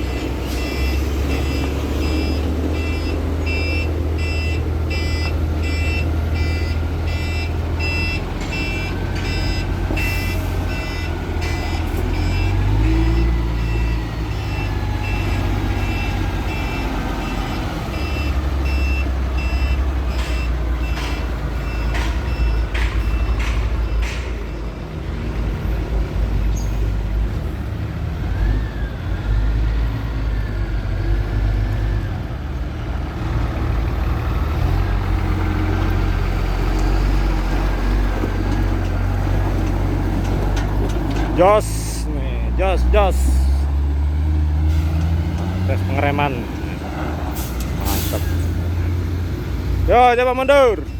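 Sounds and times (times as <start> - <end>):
diesel engine running: 0.0 - 50.9
reversing beeper: 0.4 - 25.0.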